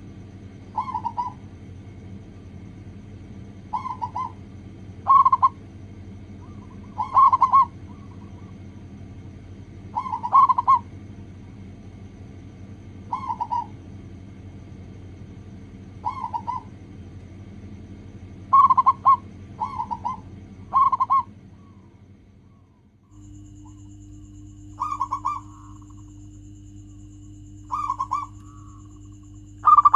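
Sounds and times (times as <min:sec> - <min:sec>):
steady low hum: 0:00.0 - 0:29.9
doves cooing: 0:00.7 - 0:01.6, 0:03.6 - 0:05.6, 0:06.3 - 0:08.8, 0:09.8 - 0:11.0, 0:13.0 - 0:13.8, 0:15.9 - 0:17.0, 0:18.4 - 0:26.2, 0:27.0 - 0:29.9.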